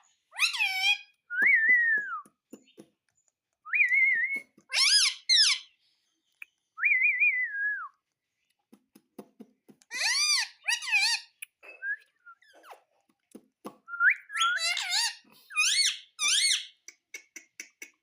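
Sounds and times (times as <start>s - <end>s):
parrot squawking: 0.3s - 1.1s, 4.7s - 5.7s, 9.9s - 11.4s, 14.4s - 16.8s.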